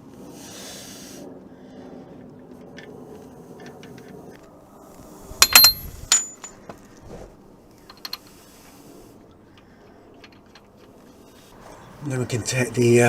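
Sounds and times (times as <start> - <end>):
small metal parts clinking: 5.4 - 6.6, 7.9 - 8.3.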